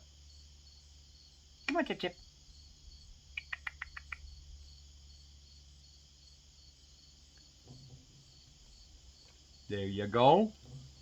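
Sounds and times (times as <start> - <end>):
crickets trilling: 0.0 - 11.0
short sharp chirps: 3.4 - 4.2.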